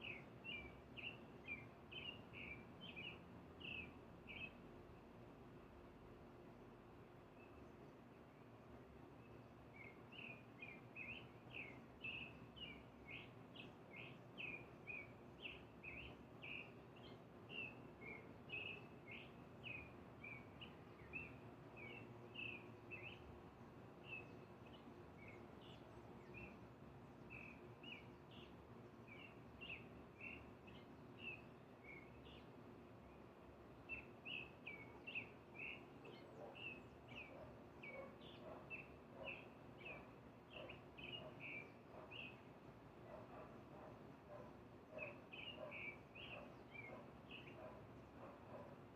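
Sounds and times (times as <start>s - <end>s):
faint background hum: 0.0s - 48.9s.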